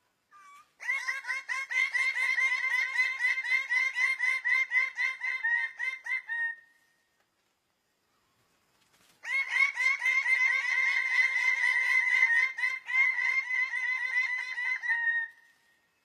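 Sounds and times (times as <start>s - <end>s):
bird repeated short calls: 0.3s - 6.8s.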